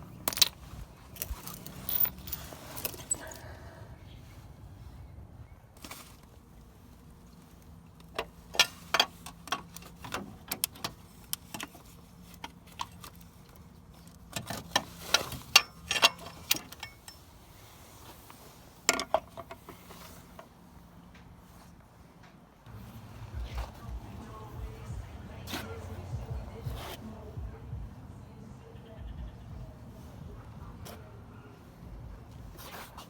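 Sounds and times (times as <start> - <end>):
faint low hum: 22.6 - 32.7.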